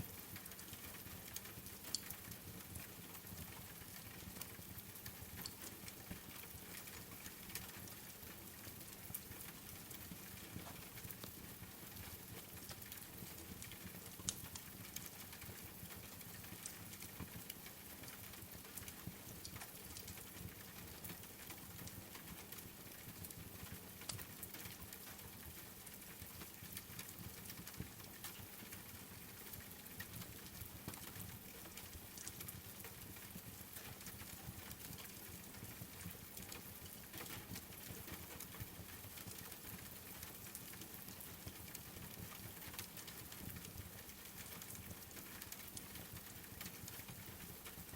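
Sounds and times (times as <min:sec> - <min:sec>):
steady rain: 0:00.0 - 0:47.9
wood fire crackling: 0:29.4 - 0:35.7, 0:39.1 - 0:47.9.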